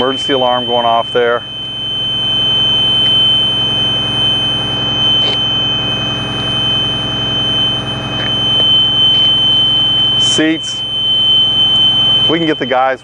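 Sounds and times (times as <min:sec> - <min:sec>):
high-pitched door buzzer: 0:00.0 - 0:12.7.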